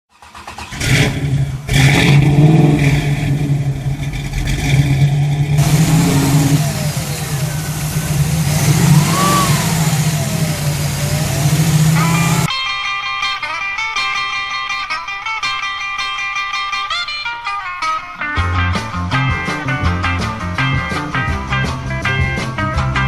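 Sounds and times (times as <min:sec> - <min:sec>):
car engine revving: 0:00.1 - 0:12.5.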